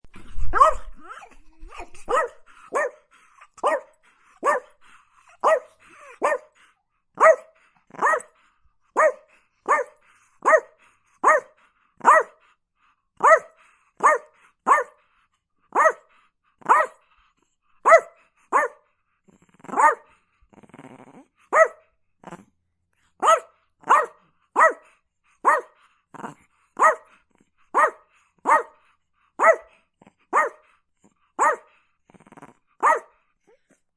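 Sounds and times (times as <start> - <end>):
small dog barking: 0.5 - 0.9, 2.1 - 4.8, 5.4 - 6.6, 7.2 - 8.4, 9.0 - 12.4, 13.2 - 15.0, 15.7 - 17.0, 17.8 - 18.8, 19.7 - 20.1, 21.5 - 21.8, 23.2 - 25.8, 26.8 - 28.8, 29.4 - 29.7, 30.3 - 30.7, 31.4 - 31.7, 32.8 - 33.2.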